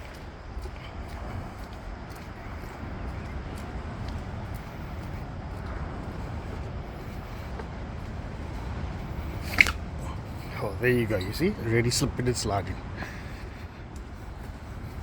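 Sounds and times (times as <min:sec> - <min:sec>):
footsteps on wet path: 0:00.0 - 0:15.0
shoe squeak: 0:09.4 - 0:09.8.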